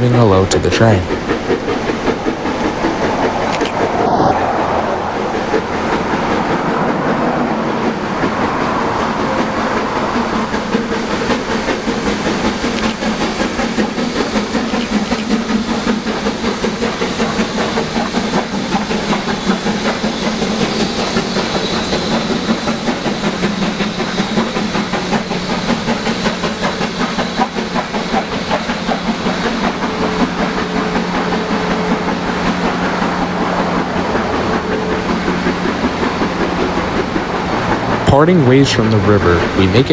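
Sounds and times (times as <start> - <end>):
train wheels rumbling on rail: 0.0 - 39.6.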